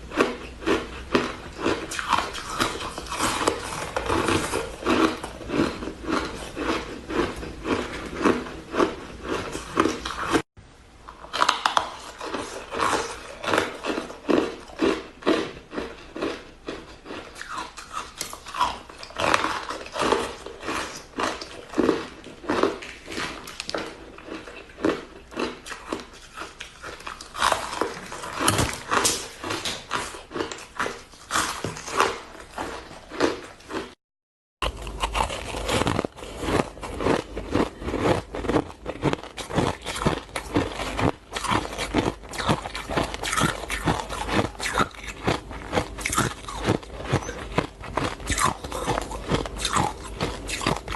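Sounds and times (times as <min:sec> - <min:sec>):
crunching shaved ice: 0:00.1 - 0:10.4, 0:34.6 - 0:50.9.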